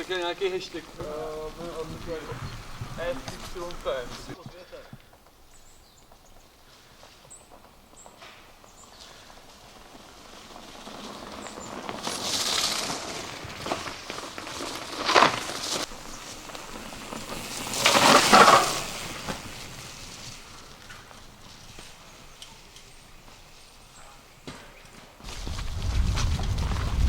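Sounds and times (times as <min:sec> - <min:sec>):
bike tyres churning through mud: 0:00.0 - 0:04.4, 0:06.8 - 0:27.0
sharp crunch: 0:11.1 - 0:22.6, 0:24.4 - 0:27.0.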